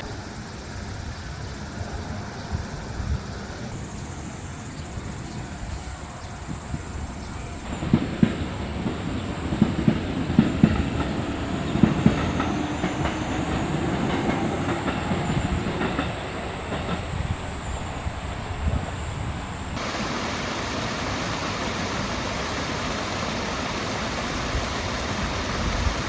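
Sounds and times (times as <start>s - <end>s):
train rumble: 0.0s - 26.0s
train wheels clacking over rail joints: 4.8s - 19.0s.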